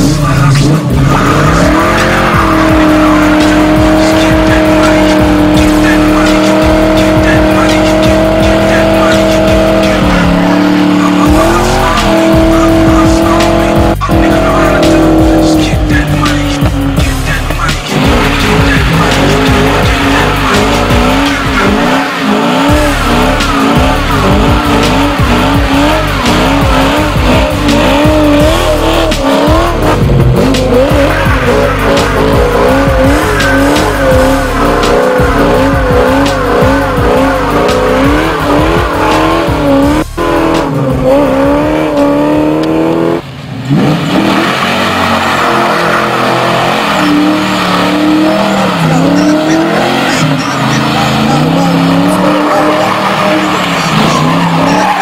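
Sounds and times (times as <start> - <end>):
car engine revving: 0.0 - 55.0
music: 0.0 - 55.0
tyres squealing: 0.0 - 55.0.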